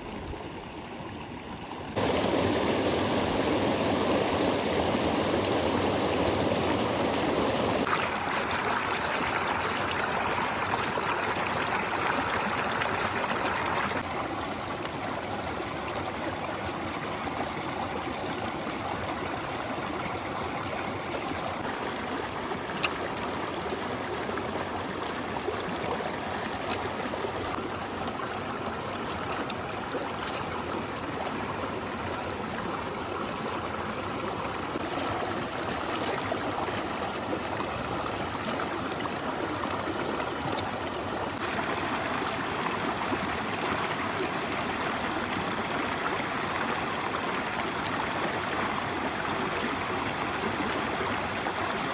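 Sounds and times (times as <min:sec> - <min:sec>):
river water flowing: 0:00.0 - 0:51.9.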